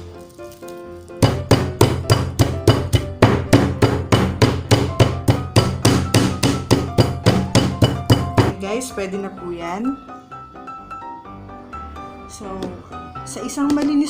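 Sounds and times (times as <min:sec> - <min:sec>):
meat mallet pounding chicken: 0:01.2 - 0:08.6.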